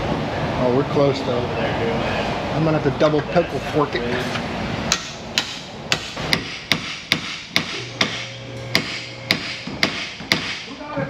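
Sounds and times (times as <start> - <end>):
hammer striking metal: 4.9 - 10.7.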